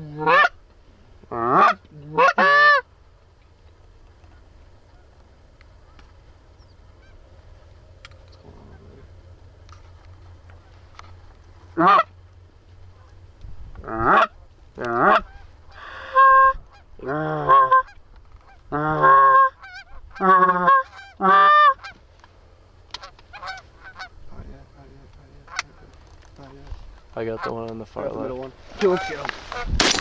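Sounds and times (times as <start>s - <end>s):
geese honking: 0.1s - 0.6s, 1.2s - 2.9s, 10.6s - 12.2s, 13.8s - 22.0s, 22.9s - 26.0s, 27.0s - 30.0s.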